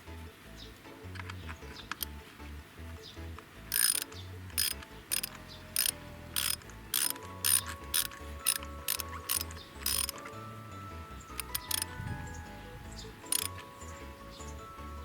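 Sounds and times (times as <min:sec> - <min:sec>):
ratchet wrench clicking: 0:03.7 - 0:10.3, 0:11.4 - 0:11.9, 0:13.3 - 0:13.5.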